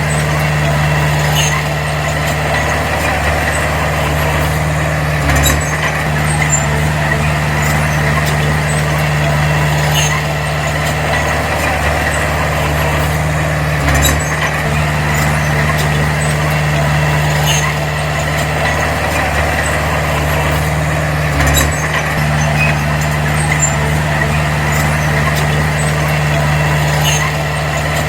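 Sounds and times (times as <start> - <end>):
bulldozer diesel engine running: 0.0 - 28.0.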